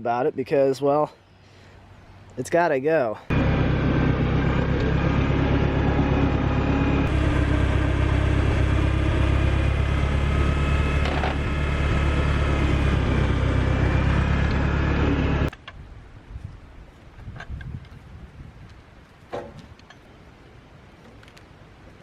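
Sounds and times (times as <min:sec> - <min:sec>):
engine running steadily: 0:03.3 - 0:15.6.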